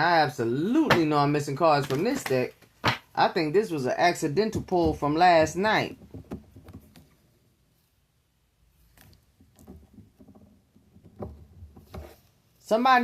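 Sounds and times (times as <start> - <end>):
cards rustling and tapping: 1.7 - 3.1, 4.6 - 7.2.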